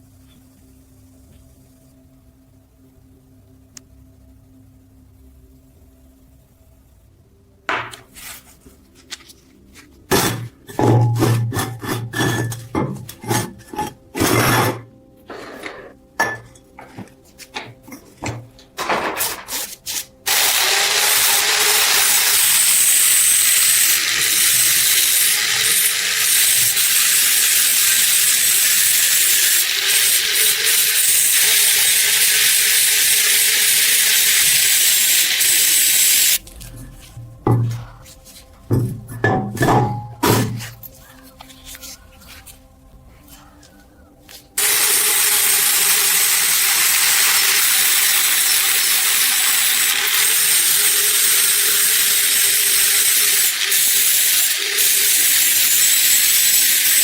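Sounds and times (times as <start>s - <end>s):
steady loud hiss: 19.3s - 36.4s.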